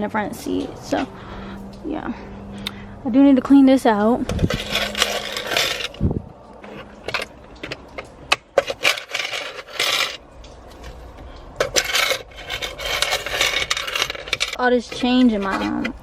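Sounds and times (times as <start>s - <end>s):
scrapes and rustles: 4.2s - 16.0s
coins clinking and rattling: 4.4s - 6.0s, 8.6s - 10.2s, 11.6s - 16.0s.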